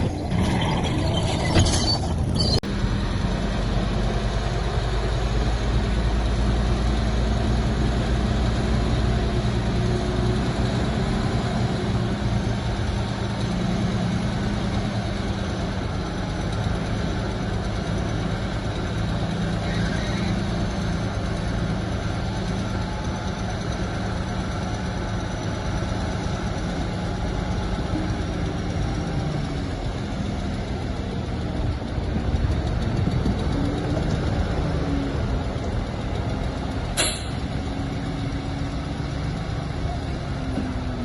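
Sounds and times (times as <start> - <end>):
heavy diesel engine running: 0.0 - 41.0
sharp click: 37.0 - 37.4.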